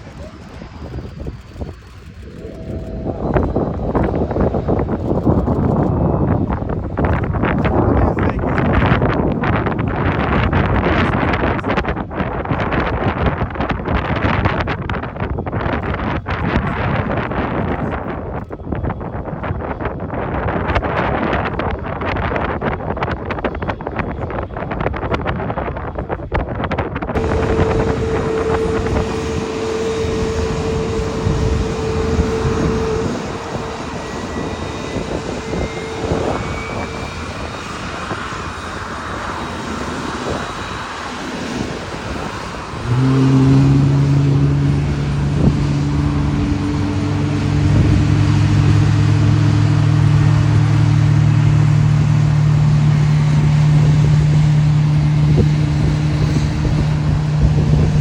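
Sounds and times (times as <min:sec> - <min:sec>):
jet engines humming: 0:00.0 - 0:14.1, 0:27.1 - 0:58.0.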